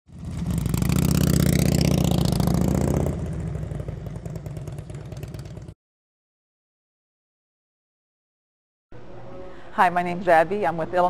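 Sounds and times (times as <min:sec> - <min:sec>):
motorcycle engine revving and idling: 0:00.1 - 0:05.8.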